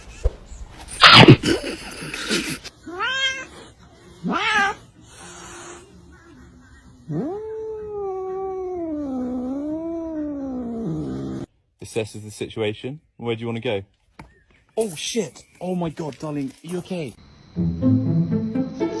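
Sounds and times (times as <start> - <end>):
cat yowling: 1.0 - 1.4, 2.9 - 3.5, 4.2 - 4.8, 7.1 - 11.4
cat meowing: 2.8 - 3.5, 4.2 - 4.8.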